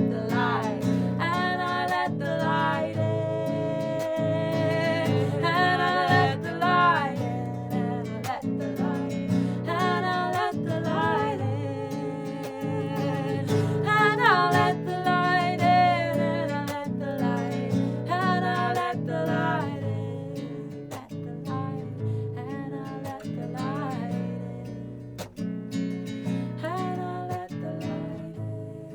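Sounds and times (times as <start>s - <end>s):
person singing: 0.0s - 21.8s
strummed acoustic guitar: 0.0s - 28.9s.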